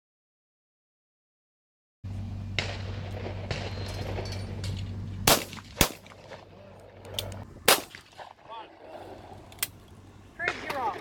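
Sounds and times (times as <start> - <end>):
steady low hum: 2.1 - 11.0
shotgun shots: 2.5 - 4.4, 5.2 - 6.5, 7.6 - 8.4.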